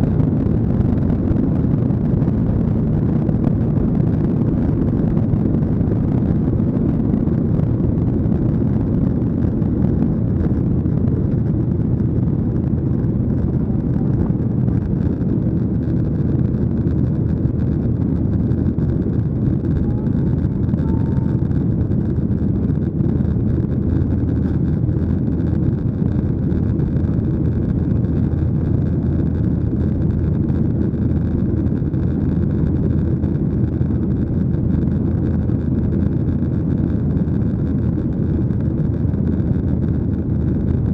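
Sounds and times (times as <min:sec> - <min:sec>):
airliner cabin drone: 0:00.0 - 0:40.9.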